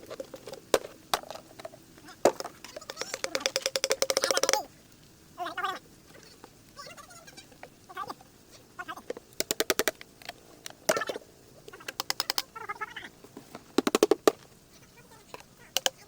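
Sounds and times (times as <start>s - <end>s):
dry gourds clicking and rattling: 0.0s - 4.7s, 9.0s - 14.5s, 15.2s - 16.0s.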